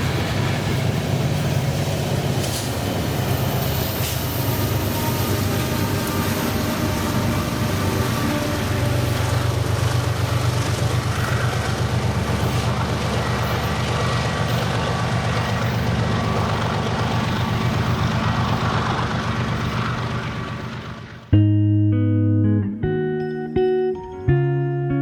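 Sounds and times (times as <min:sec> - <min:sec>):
freight train passing: 0:00.0 - 0:21.4
guitar music: 0:21.3 - 0:25.0.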